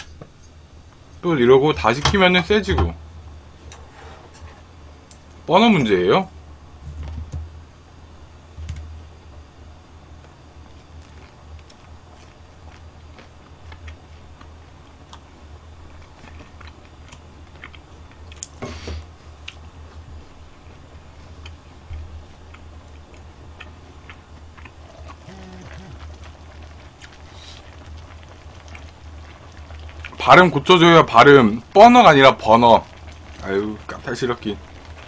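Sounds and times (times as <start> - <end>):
steady low hum: 0.0 - 35.0
chewing and mouth sounds: 15.9 - 18.6, 21.4 - 30.2.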